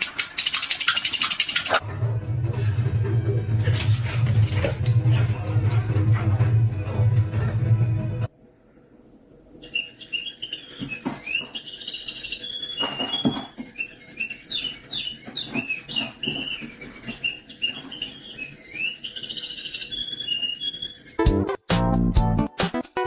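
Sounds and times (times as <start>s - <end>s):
small bird chirping: 9.6s - 21.2s.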